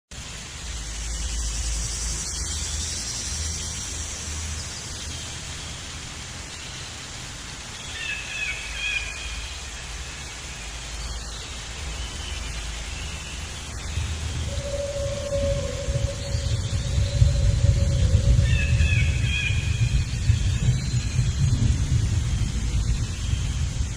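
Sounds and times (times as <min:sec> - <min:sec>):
low outdoor rumble: 0:09.0 - 0:23.9
faint bird calls: 0:14.0 - 0:20.4.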